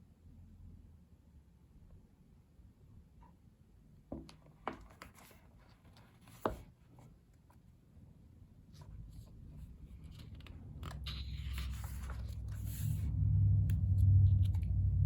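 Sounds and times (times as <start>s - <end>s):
paper pages rustling: 8.8s - 13.0s
low hum: 8.8s - 15.0s.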